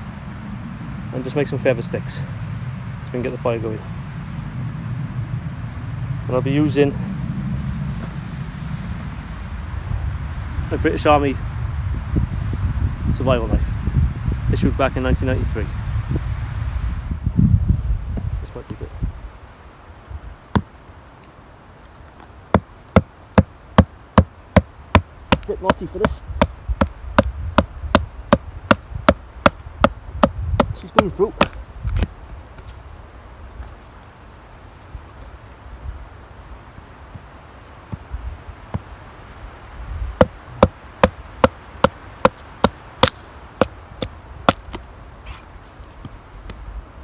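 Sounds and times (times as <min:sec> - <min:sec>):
knife striking wooden log: 0:24.2 - 0:32.1, 0:40.2 - 0:44.8.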